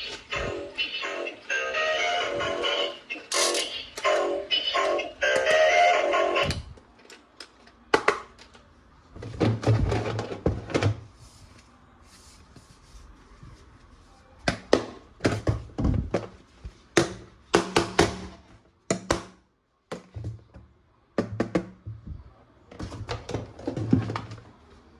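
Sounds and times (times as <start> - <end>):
plastic toy parts knocking: 7.9 - 8.6.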